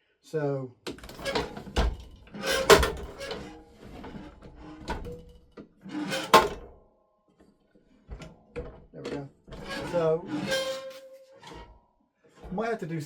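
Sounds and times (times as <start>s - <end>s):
hard parts knocking and clunking: 0.9s - 6.8s, 8.1s - 10.7s
scraping: 9.2s - 11.7s.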